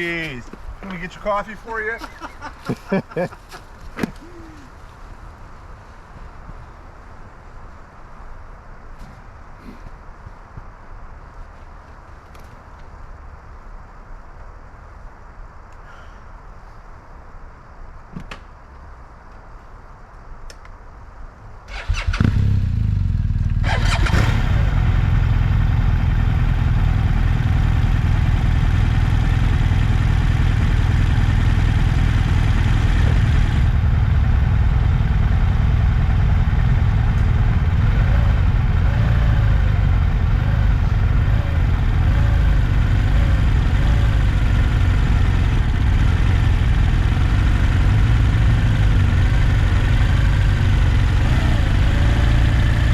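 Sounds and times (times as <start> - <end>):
motorcycle engine starting and idling: 21.7 - 52.9.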